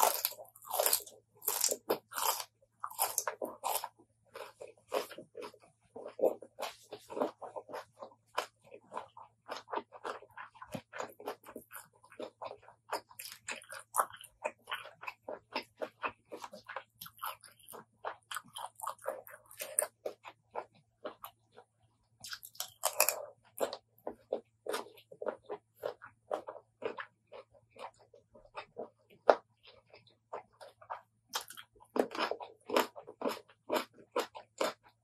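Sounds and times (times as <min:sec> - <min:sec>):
wet chewing and crunching: 0:00.0 - 0:35.0.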